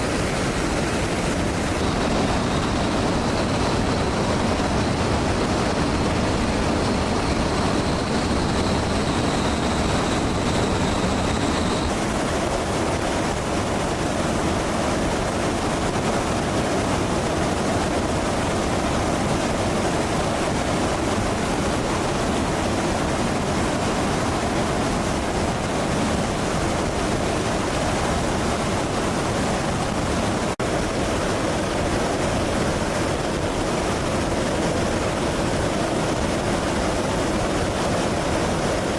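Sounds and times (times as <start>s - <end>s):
jet engine roar: 0.0s - 38.9s
thin high whine: 0.0s - 38.9s.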